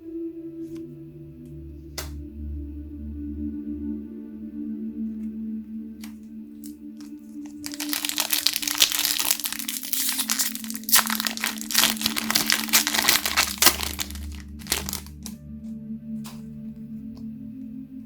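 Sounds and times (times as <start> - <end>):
soft ambient music: 0.0 - 18.0
packaging crinkling: 7.0 - 15.3.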